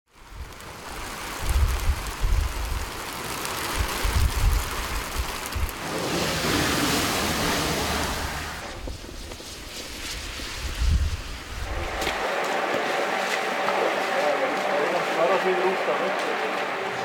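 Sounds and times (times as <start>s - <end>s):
heavy rain pouring: 0.1s - 17.0s
wind buffeting the microphone: 0.2s - 3.0s, 3.7s - 5.8s, 8.7s - 12.3s.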